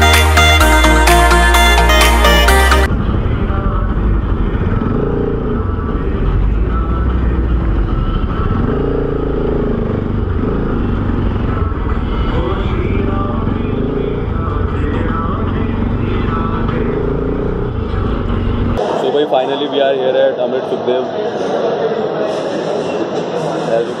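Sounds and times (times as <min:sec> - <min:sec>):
electronic background music: 0:00.0 - 0:02.9
motorcycle engine running: 0:02.8 - 0:19.0.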